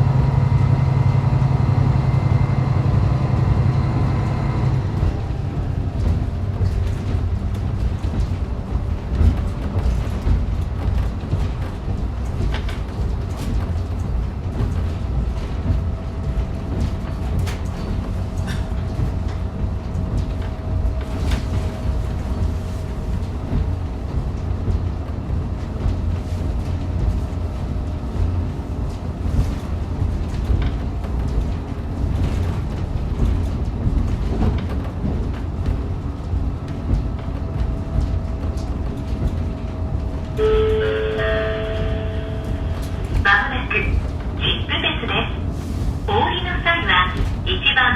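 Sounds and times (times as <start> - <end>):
railcar engine and wheels rumbling: 0.0 - 47.9
steady whine: 40.3 - 47.9
steady tones: 40.4 - 45.5.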